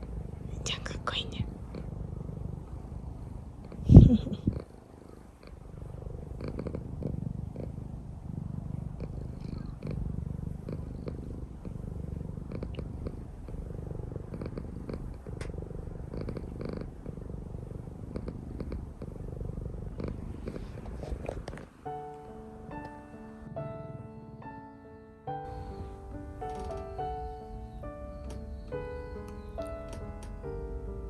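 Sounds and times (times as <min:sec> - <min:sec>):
cat purring: 0:00.0 - 0:31.0
light ticks: 0:15.2 - 0:15.5, 0:28.2 - 0:30.6.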